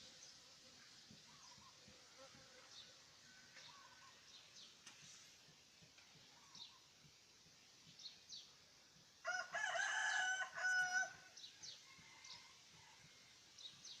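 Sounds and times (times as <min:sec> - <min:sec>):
small birds chirping: 0:00.0 - 0:09.0, 0:11.2 - 0:14.0
rooster crowing: 0:09.2 - 0:13.2.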